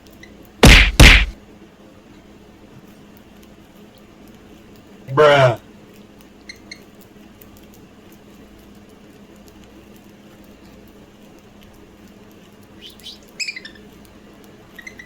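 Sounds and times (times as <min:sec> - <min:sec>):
low background hum: 0:00.0 - 0:15.0
budgerigar chirping: 0:12.8 - 0:13.8.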